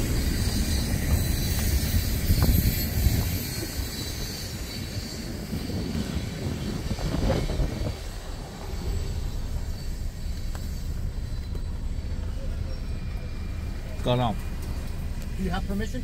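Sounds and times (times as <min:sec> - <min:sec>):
freight train rumbling past: 0:00.0 - 0:16.0.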